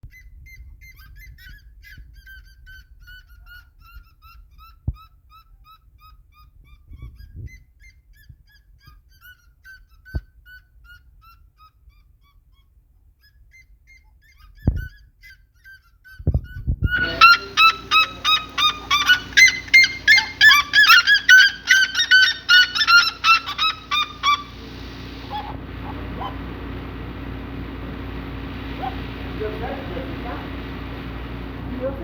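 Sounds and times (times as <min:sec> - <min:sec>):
birds honking calls: 0:17.0 - 0:32.0.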